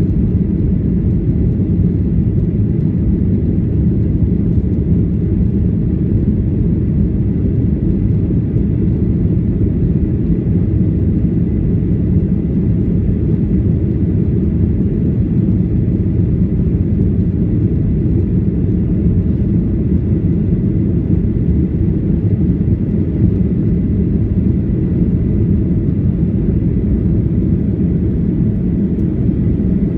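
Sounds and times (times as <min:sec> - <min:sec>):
airflow over fuselage: 0:00.0 - 0:29.9
jet engine rumble in cabin: 0:00.0 - 0:29.9.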